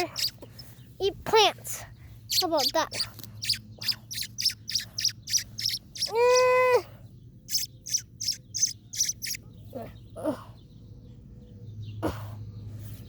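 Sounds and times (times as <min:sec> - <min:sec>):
bird held call: 0:00.0 - 0:00.4, 0:02.3 - 0:06.5, 0:07.5 - 0:09.4
bird chirping: 0:00.0 - 0:01.0, 0:01.8 - 0:12.0.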